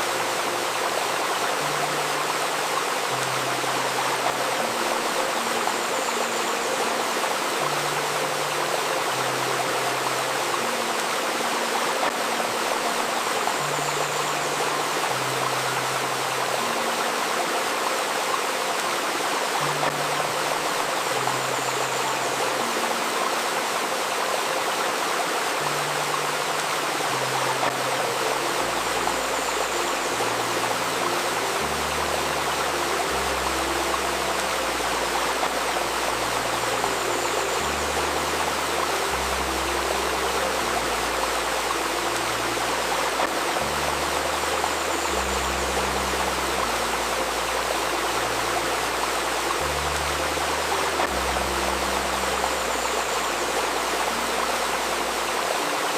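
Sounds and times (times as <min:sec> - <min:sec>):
soft slow ambient music: 0:00.0 - 0:55.9
stream babbling: 0:00.0 - 0:55.9.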